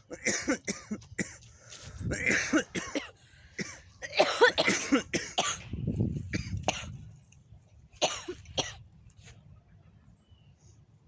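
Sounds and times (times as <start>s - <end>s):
person coughing: 0.1s - 1.4s, 2.1s - 5.7s, 8.0s - 8.8s
person clearing throat: 2.1s - 5.6s.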